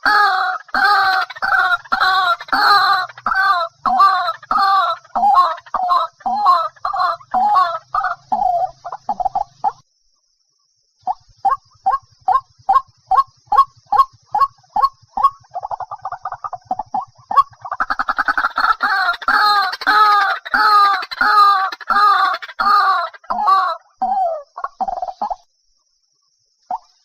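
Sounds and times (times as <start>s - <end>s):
bird croaking notes: 0.0s - 9.8s, 11.1s - 25.4s
waterhen calling: 0.0s - 9.8s, 11.1s - 25.4s.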